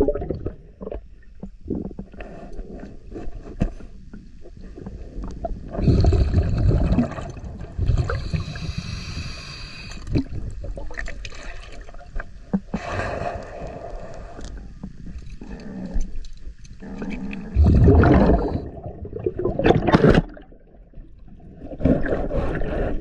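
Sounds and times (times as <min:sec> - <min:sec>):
bubbling exhale: 0:05.6 - 0:11.6, 0:16.8 - 0:20.4
diver regulator breathing: 0:08.0 - 0:10.2, 0:12.6 - 0:18.8, 0:21.9 - 0:23.0.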